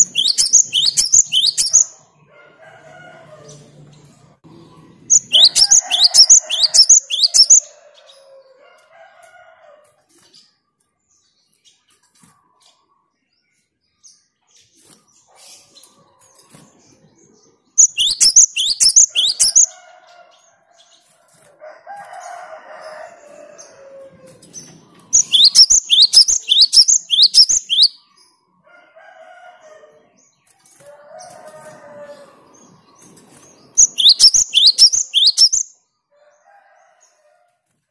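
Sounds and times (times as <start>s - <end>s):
bird singing sharp high notes: 0.0s - 1.9s, 5.1s - 7.6s, 17.8s - 19.7s, 25.2s - 28.0s, 33.8s - 35.6s.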